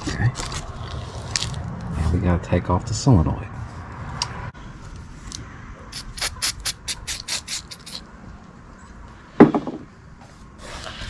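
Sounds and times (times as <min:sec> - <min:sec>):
tool strokes on fasteners: 0:06.0 - 0:08.0
loud knock: 0:09.4 - 0:09.9.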